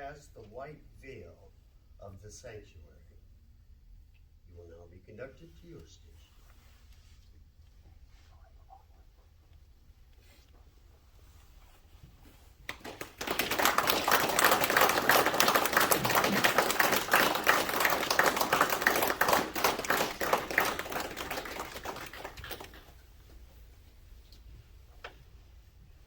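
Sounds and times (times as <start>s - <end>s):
small group applauding: 12.6s - 23.0s.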